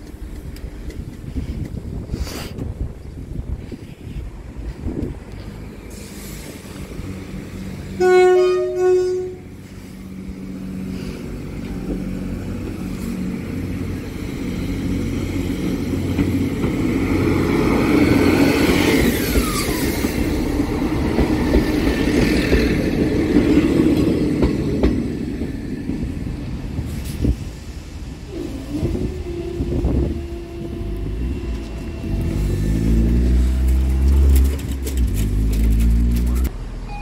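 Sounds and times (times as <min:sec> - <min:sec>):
train rumble: 0:00.0 - 0:37.0
train horn blast: 0:08.0 - 0:09.6, 0:28.3 - 0:33.1.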